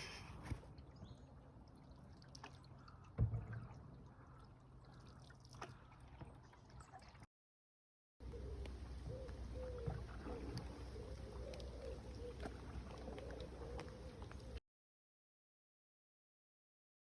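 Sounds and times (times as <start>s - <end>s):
water dripping off paddle: 0.7s - 7.2s, 8.6s - 14.6s.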